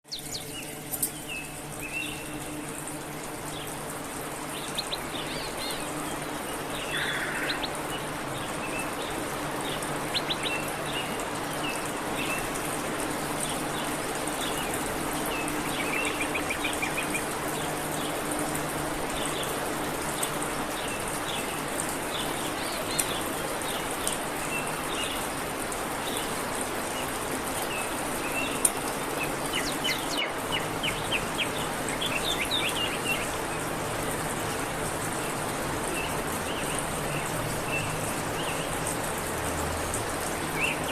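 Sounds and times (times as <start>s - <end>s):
small birds chirping: 0.1s - 12.6s, 13.4s - 18.4s, 27.6s - 34.2s.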